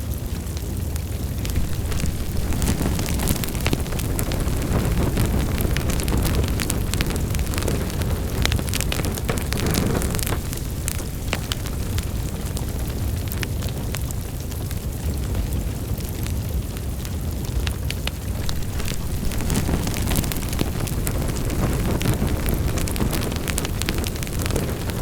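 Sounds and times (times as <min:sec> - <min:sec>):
fire crackles and pops: 0:00.0 - 0:25.0
low rumble of flames: 0:00.0 - 0:25.0.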